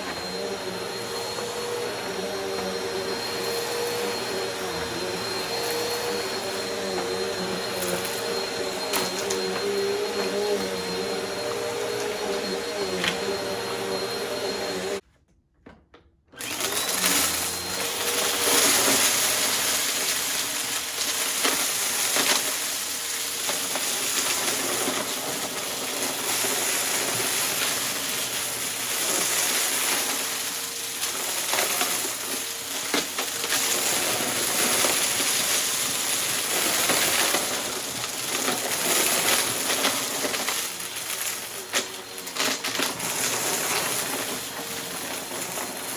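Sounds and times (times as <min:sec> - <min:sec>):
upright vacuum cleaner running: 0:00.0 - 0:15.0, 0:16.4 - 0:45.9
debris rattling through vacuum: 0:16.5 - 0:45.9.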